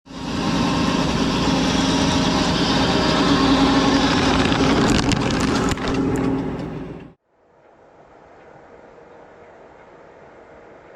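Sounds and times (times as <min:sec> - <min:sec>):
tractor engine running: 0:00.1 - 0:07.2.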